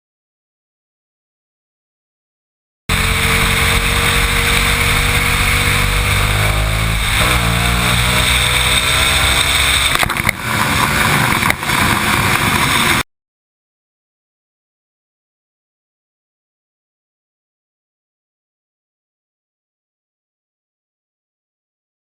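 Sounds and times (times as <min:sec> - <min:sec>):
motorcycle engine accelerating: 0:02.9 - 0:13.0.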